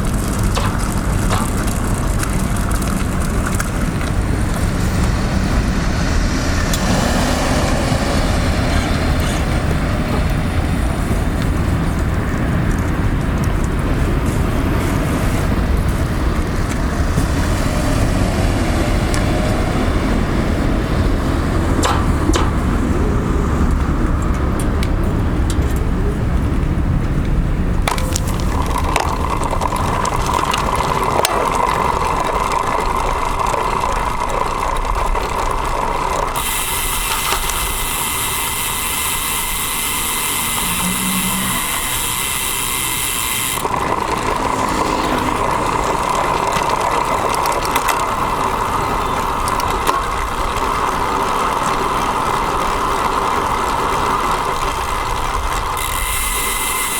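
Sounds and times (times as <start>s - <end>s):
bicycle freehub ticking: 0.0s - 56.9s
high hiss with whine: 39.2s - 43.0s.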